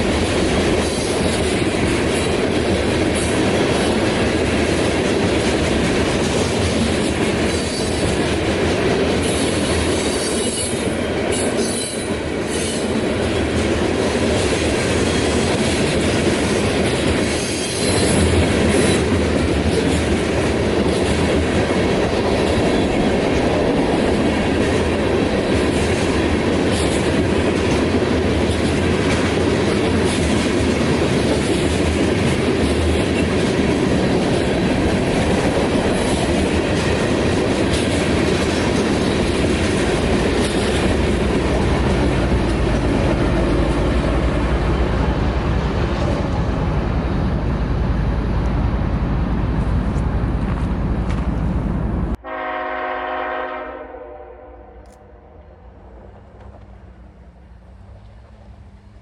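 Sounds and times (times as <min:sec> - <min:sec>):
freight train rumble: 0:00.0 - 0:59.0
high wheel squeal: 0:17.4 - 0:19.0.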